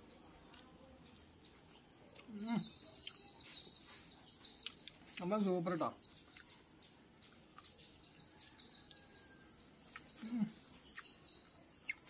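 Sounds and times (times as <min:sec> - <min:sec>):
crunchy chewing: 0:00.0 - 0:12.0
faint birds chirping: 0:00.0 - 0:12.0.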